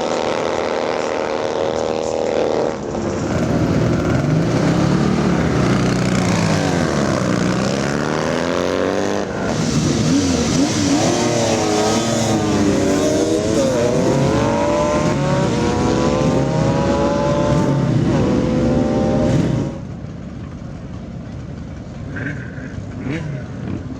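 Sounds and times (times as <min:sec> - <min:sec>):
motorcycle engine revving: 0:00.0 - 0:20.2, 0:22.1 - 0:23.9.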